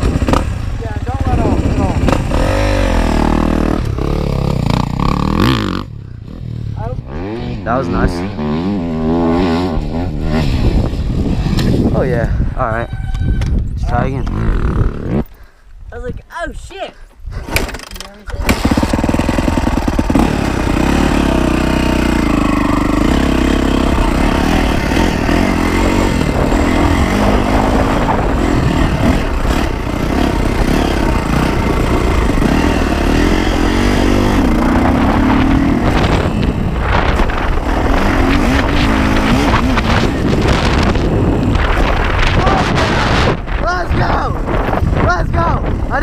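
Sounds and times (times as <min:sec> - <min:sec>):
dirt bike engine revving: 0:00.0 - 0:12.0, 0:14.2 - 0:15.3, 0:18.4 - 0:46.0.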